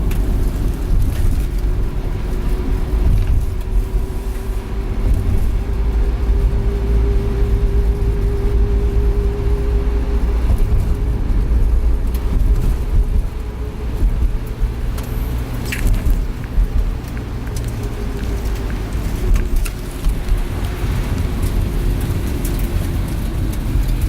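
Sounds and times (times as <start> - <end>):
engine and road noise rumble: 0.0 - 24.0.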